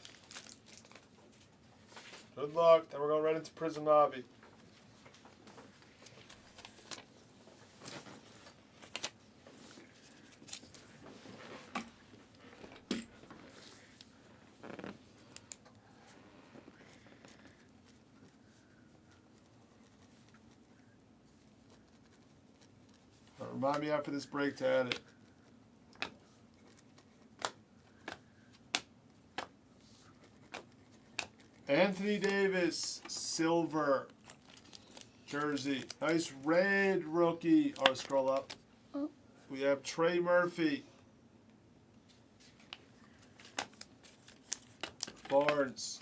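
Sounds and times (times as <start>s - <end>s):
cards rustling and sliding: 26.0s - 33.3s, 34.2s - 36.9s, 42.4s - 46.0s.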